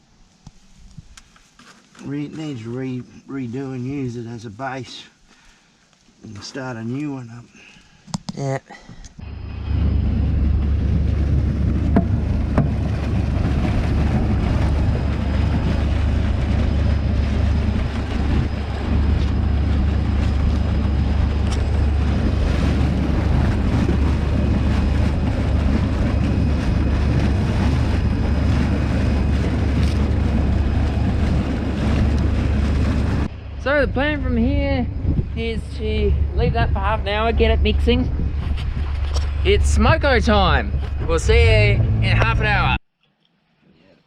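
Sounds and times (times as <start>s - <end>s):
engine deep rumble: 9.2s - 42.8s.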